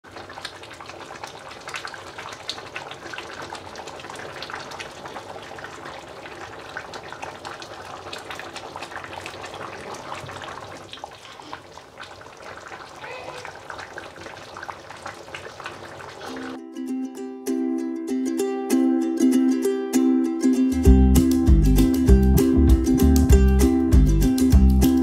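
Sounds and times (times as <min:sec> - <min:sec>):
soup bubbling in a pot: 0:00.0 - 0:16.6.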